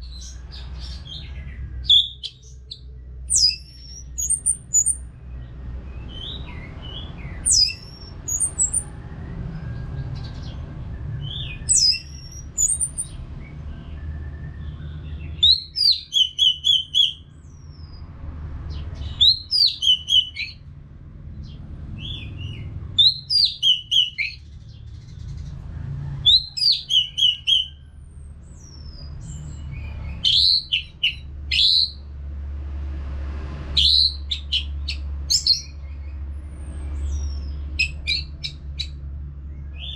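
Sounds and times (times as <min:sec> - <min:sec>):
thrush singing: 0:06.0 - 0:09.6.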